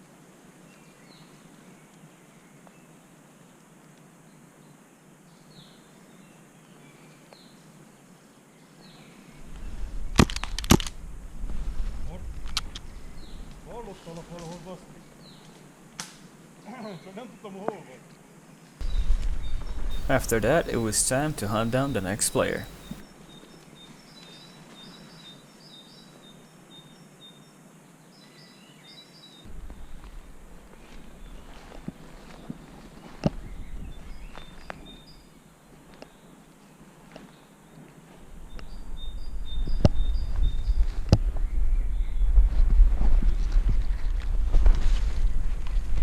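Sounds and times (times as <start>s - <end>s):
faint hiss: 18.8s - 23.0s
bird chirping: 19.9s - 23.0s.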